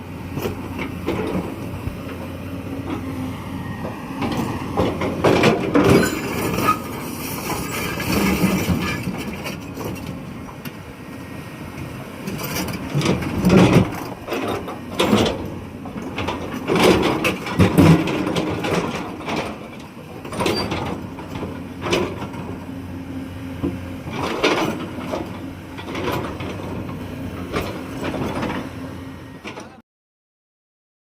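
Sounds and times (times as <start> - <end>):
excavator engine running: 0.0 - 29.8
excavator clunks and knocks: 0.1 - 29.8.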